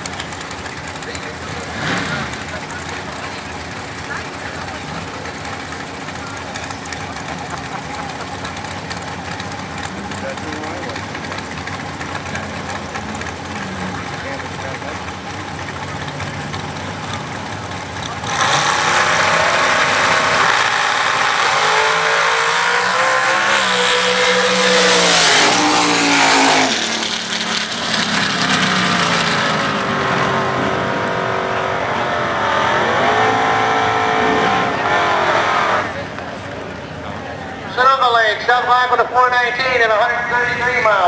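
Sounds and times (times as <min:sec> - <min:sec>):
drag racing cars accelerating: 0:00.0 - 0:41.0.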